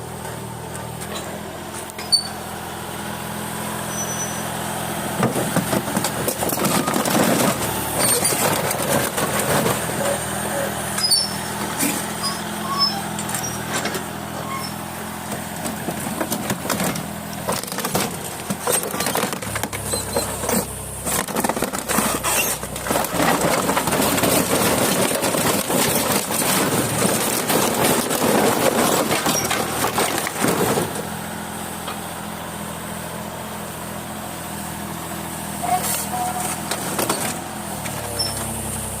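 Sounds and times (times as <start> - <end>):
excavator diesel engine running: 0.0 - 39.0
crunching sheet metal and plastic: 16.2 - 30.9.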